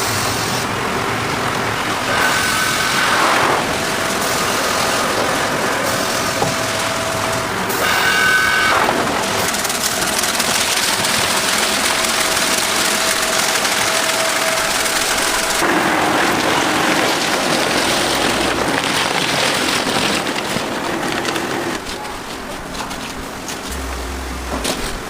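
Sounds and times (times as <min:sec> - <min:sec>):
hot oil sizzling and crackling: 0:02.0 - 0:18.6.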